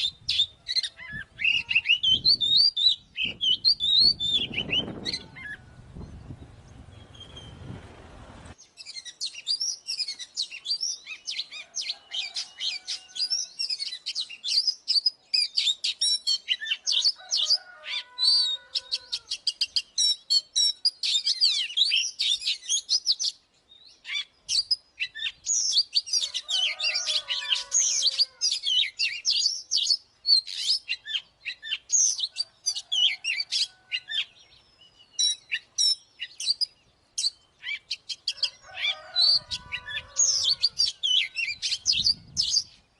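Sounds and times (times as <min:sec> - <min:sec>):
bird singing whistles and chatter: 0:00.0 - 0:05.6.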